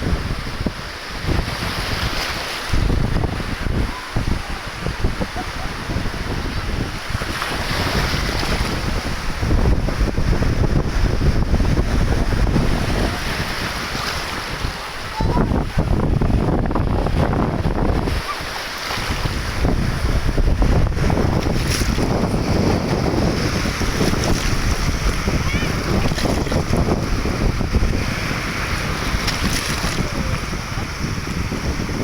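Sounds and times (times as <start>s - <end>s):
wind buffeting microphone: 0.0s - 32.0s
steady rushing noise: 19.1s - 32.0s.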